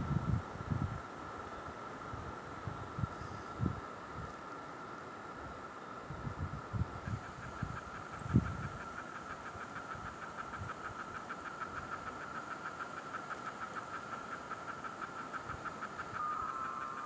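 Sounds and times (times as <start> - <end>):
insect pulsed trill: 7.0 - 17.0.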